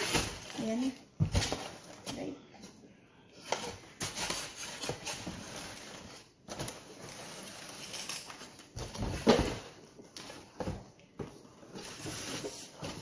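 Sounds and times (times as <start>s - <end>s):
packaging rustling and crinkling: 3.5s - 13.0s.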